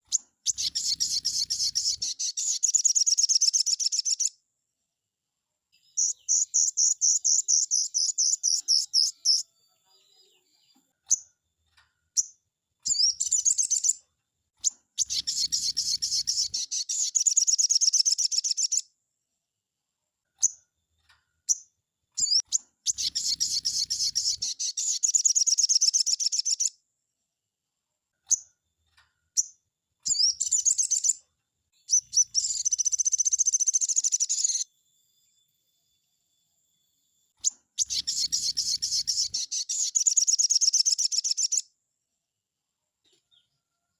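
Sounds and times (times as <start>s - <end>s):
songbird singing rapid phrases: 0.0s - 4.4s, 5.8s - 11.3s, 12.1s - 14.0s, 14.6s - 18.9s, 21.4s - 26.8s, 29.3s - 31.2s, 31.8s - 34.7s, 37.4s - 41.7s
short bird calls: 37.4s - 41.6s.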